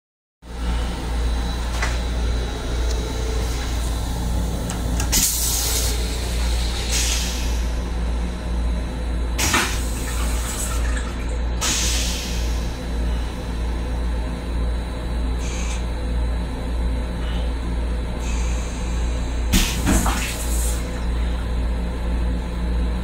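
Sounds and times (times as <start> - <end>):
electric train rumble: 0.4 - 23.0.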